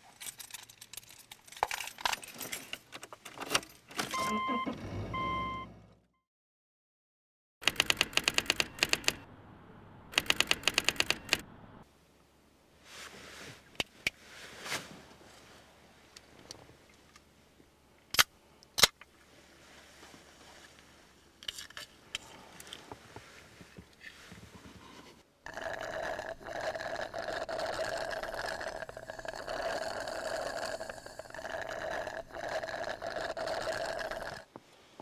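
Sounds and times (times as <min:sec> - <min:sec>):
sharp clicks: 0:07.6 - 0:09.2, 0:10.1 - 0:11.4
faint rustling: 0:12.8 - 0:17.1, 0:19.1 - 0:21.4
slurping soda through a straw: 0:25.5 - 0:34.5.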